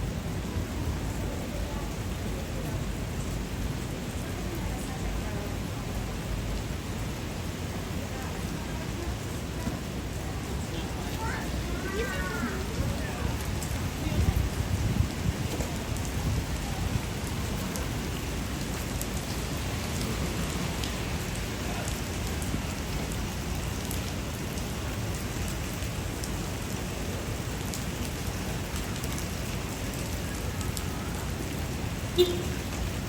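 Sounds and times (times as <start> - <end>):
heavy rain splashing: 0.0 - 33.0
rain drop ticks: 9.3 - 33.0.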